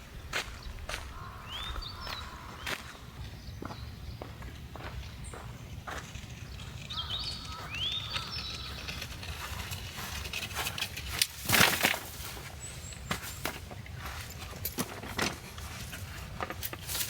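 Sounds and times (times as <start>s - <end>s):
loud crunching rustle: 5.5s - 17.0s.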